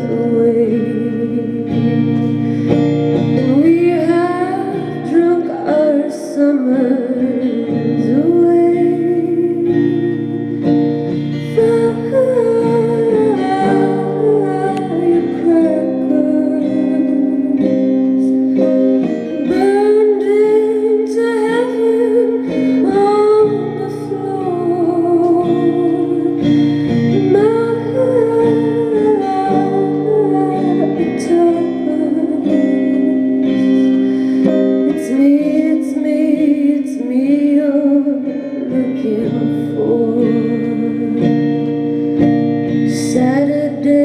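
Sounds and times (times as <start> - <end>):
held guitar chords: 0.0 - 44.0
woman singing: 0.0 - 44.0.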